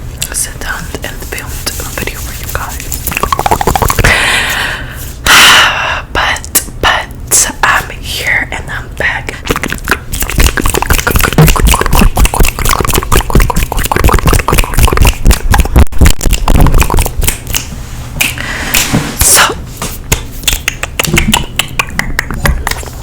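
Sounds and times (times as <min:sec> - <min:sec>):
rapid clicking and crackling: 0:09.6 - 0:17.7.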